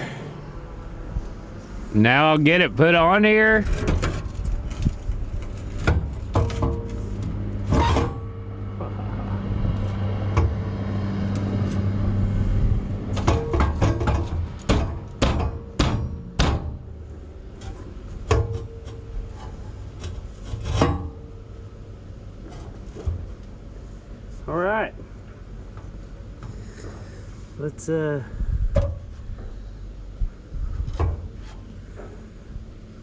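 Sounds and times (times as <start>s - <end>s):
low hum: 6.8s - 13.8s.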